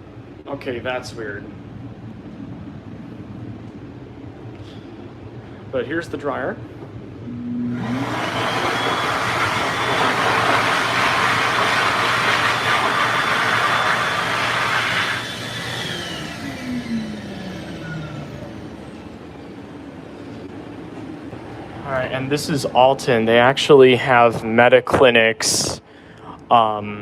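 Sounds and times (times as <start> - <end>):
hand dryer blowing air: 7.5 - 18.3.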